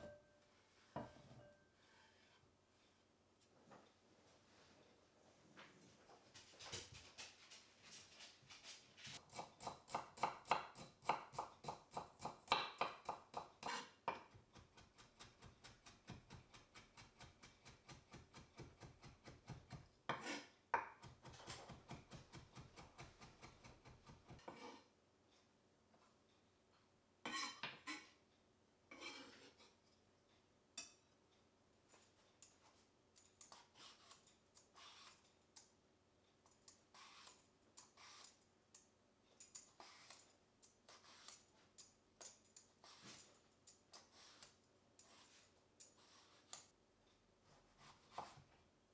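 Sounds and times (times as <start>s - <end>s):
knife chopping on cutting board: 9.2s - 24.8s.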